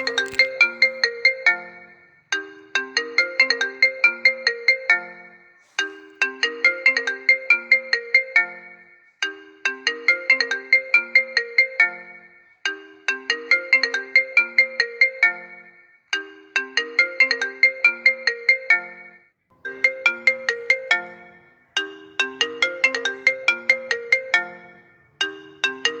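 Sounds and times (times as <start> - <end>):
phone ringtone melody: 19.6 - 26.0.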